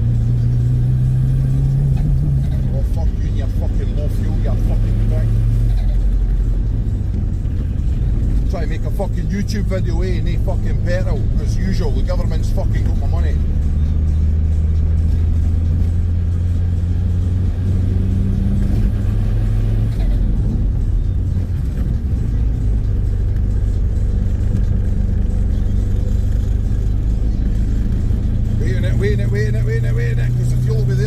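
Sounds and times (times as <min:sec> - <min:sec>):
car engine and road drone: 0:00.0 - 0:31.0.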